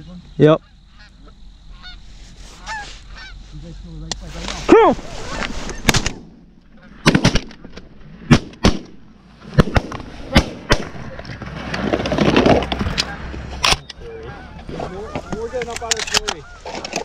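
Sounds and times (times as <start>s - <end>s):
shotgun shots: 5.7s - 6.4s, 7.0s - 11.2s.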